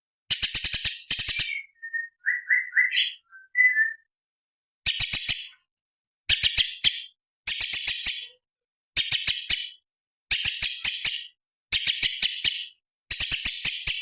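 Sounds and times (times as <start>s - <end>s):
bird ticking notes: 0.3s - 4.1s
bird whistled notes: 0.6s - 4.1s.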